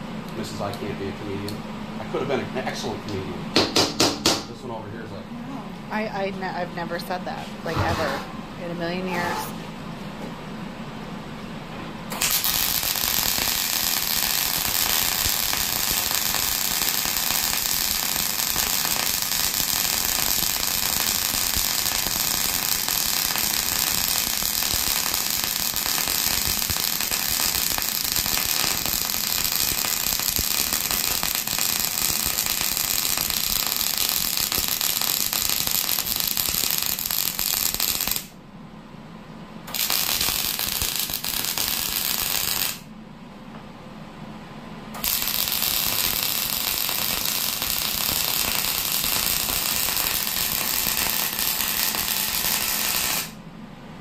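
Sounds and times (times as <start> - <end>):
welder arc crackling: 12.1 - 38.3, 39.7 - 42.9, 45.0 - 53.4.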